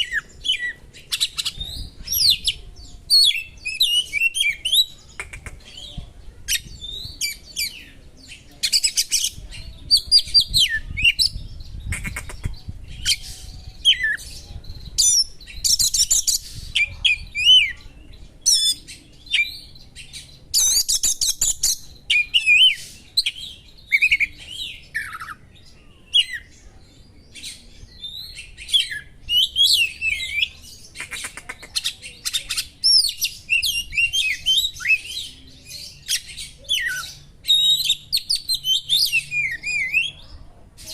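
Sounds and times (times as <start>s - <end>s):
bird harsh chattering: 3.3s - 5.9s, 10.9s - 14.2s, 28.8s - 35.1s.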